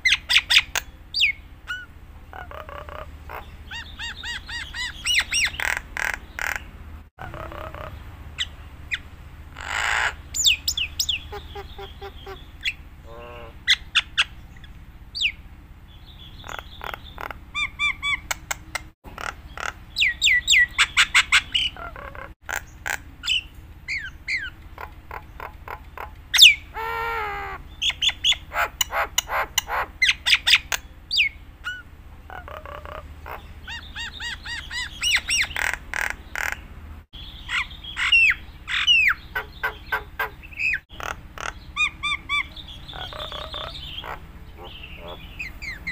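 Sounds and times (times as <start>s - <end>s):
bird harsh squawks: 0.0s - 9.0s, 9.6s - 14.4s, 16.4s - 18.4s, 19.2s - 36.6s, 37.4s - 45.9s
steady low hum: 0.0s - 45.9s
bird whistles and chirps: 10.4s - 12.8s, 26.4s - 26.7s.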